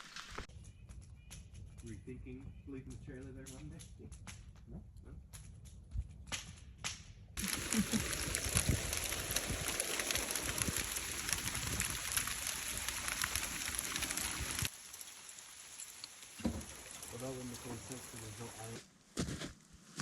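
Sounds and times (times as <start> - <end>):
hail pattering on surfaces: 7.4 - 18.8.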